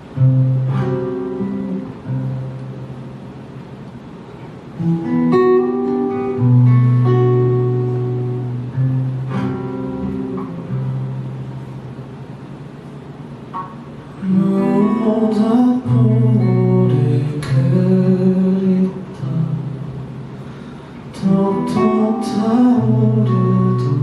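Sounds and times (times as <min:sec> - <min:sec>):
acoustic guitar chords ringing: 0:00.0 - 0:24.0.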